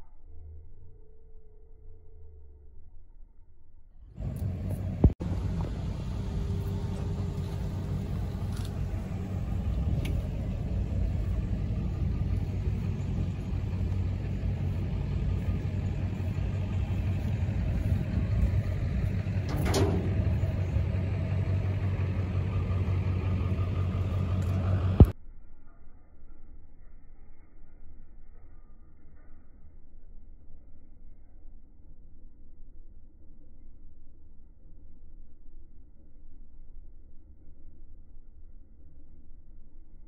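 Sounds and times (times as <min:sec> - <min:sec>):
car engine idling: 0:04.2 - 0:25.2.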